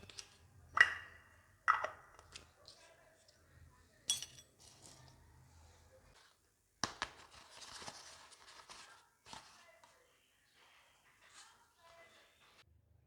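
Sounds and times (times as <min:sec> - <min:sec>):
toy kitchen pieces clinking: 0:00.0 - 0:02.8.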